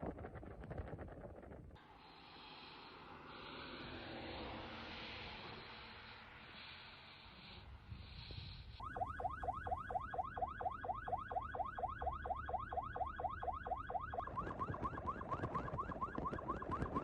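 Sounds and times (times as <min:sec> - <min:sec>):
car alarm chirping: 0:08.8 - 0:17.0.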